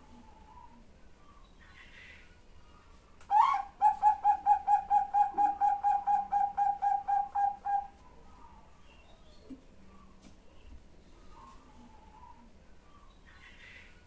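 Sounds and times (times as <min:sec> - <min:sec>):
dove cooing: 0:00.0 - 0:00.9, 0:03.3 - 0:08.7.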